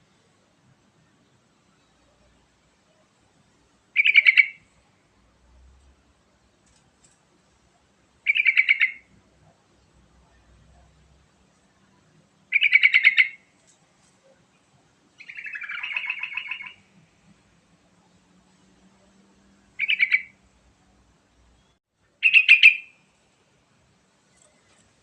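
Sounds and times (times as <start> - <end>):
bulbul singing: 4.0 - 4.6, 8.2 - 9.1, 12.5 - 13.4, 15.2 - 16.9, 19.8 - 20.4, 21.6 - 23.0.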